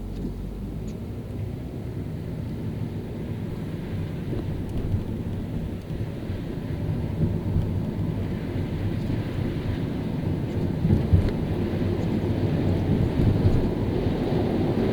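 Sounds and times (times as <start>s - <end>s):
tyres and engine rumbling: 0.0s - 14.9s.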